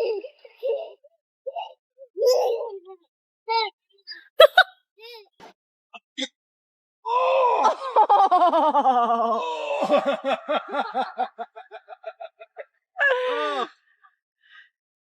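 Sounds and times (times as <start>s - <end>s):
person laughing hard: 4.4s - 4.7s, 7.6s - 13.4s.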